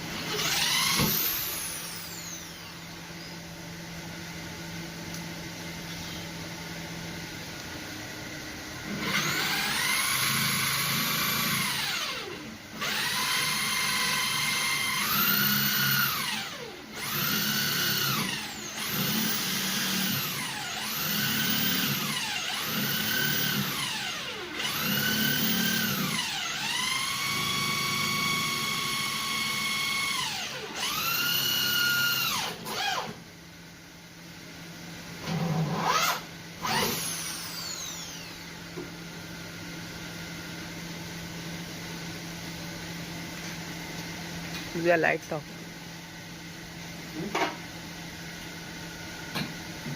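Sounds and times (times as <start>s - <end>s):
electric drill motor whine: 0.0s - 3.4s, 8.8s - 33.2s, 35.2s - 39.6s.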